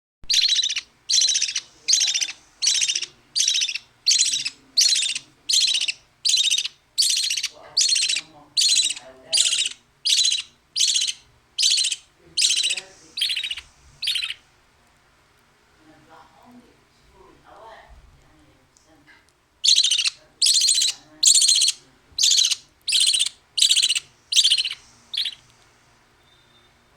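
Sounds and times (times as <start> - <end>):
young bird begging calls: 0.2 - 14.4, 19.6 - 25.4.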